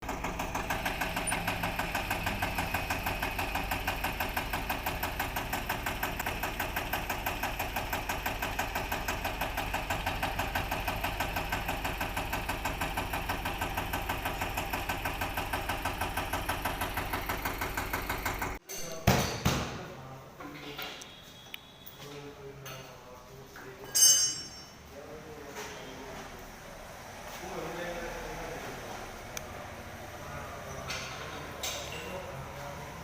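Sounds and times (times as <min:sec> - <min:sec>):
tractor diesel engine idling: 0:00.0 - 0:18.6.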